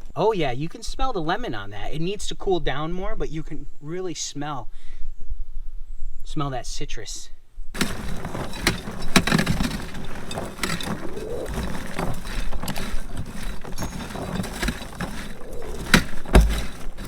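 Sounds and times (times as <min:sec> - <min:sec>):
heavy thump: 0:07.8 - 0:17.0
popcorn rustling and rattling: 0:07.8 - 0:17.0.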